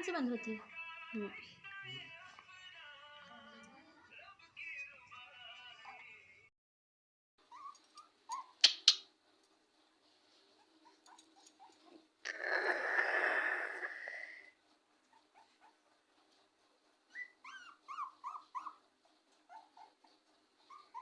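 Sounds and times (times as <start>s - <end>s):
dog whimpering: 7.4s - 8.6s, 15.1s - 15.9s, 17.1s - 21.0s.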